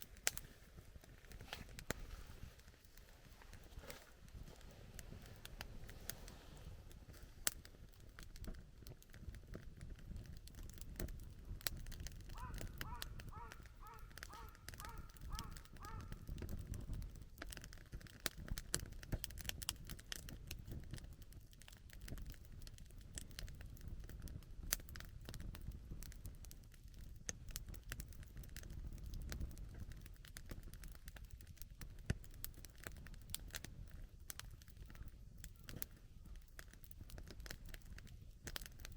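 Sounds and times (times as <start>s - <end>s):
campfire crackling and popping: 0.0s - 38.9s
bird calling: 12.3s - 16.1s.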